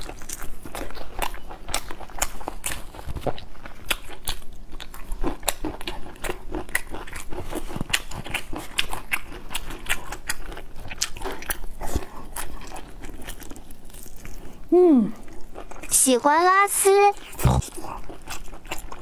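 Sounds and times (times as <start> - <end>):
crunchy chewing and biting: 0.0 - 15.9, 17.2 - 19.0.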